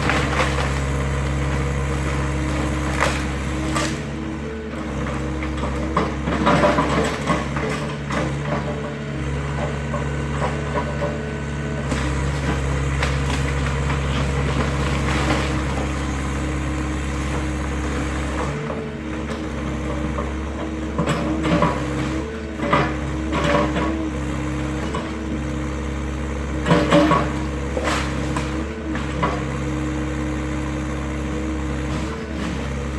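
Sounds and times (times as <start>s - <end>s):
timber cracking and splintering: 0.0s - 1.7s, 2.5s - 4.0s
excavator engine running: 0.0s - 32.9s.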